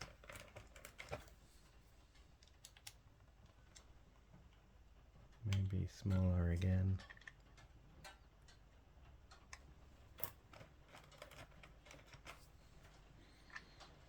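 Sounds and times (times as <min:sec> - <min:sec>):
low steady hum: 0:04.8 - 0:07.1.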